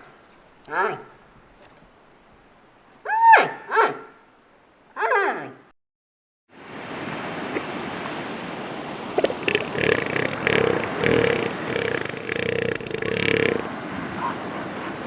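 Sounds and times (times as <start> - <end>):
background hiss: 7.2 - 13.9
animal short calls: 7.4 - 7.9, 9.2 - 13.8.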